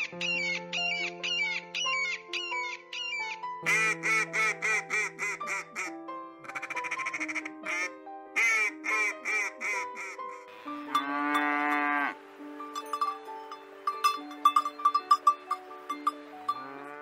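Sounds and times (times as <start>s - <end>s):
duck quacking: 3.7s - 12.1s
long drawn-out animal call: 16.6s - 17.0s.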